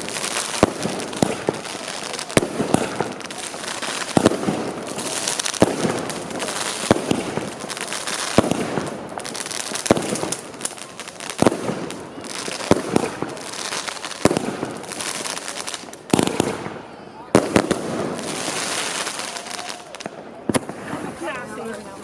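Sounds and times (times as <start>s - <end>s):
firework bangs: 0.0s - 21.4s
firework crackling: 0.0s - 22.0s.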